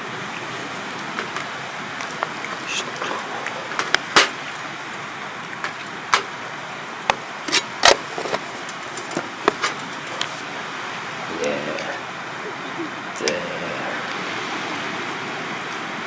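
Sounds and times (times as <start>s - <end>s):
campfire crackling: 0.0s - 16.0s.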